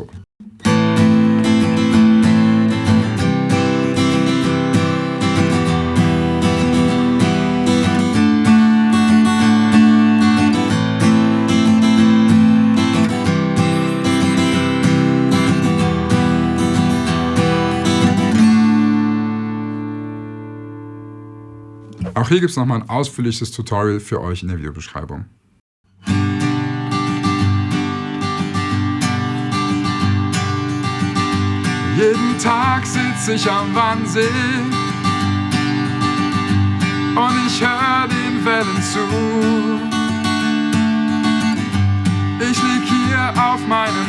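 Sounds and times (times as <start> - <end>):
acoustic guitar strumming: 0.0 - 22.4, 26.0 - 44.0.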